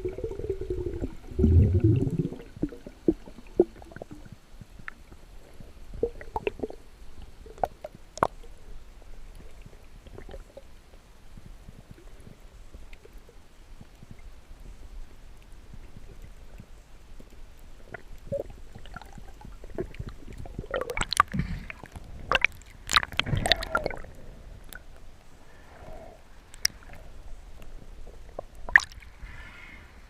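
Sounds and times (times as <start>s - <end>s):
water sloshing and gurgling: 0.0s - 4.4s, 17.8s - 25.0s, 25.9s - 29.3s.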